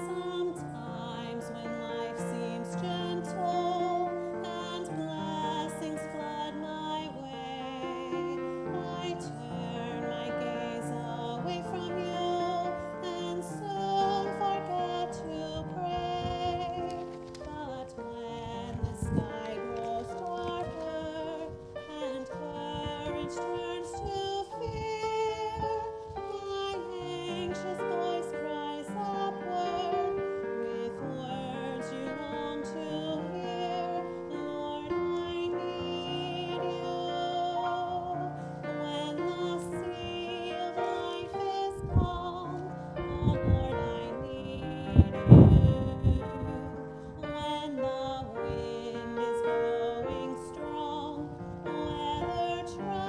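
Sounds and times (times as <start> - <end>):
woman singing with vibrato: 0.0 - 53.0
wind buffeting microphone: 8.8 - 30.1, 38.8 - 53.0.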